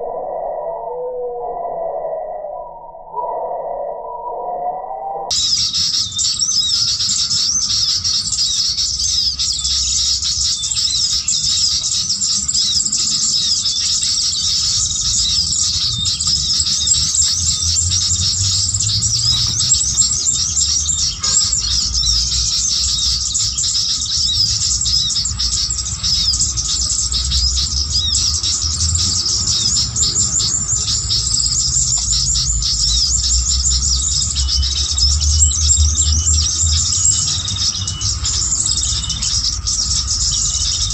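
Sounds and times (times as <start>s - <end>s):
songbirds chirping: 0.0s - 40.9s
low rumble: 14.1s - 40.9s.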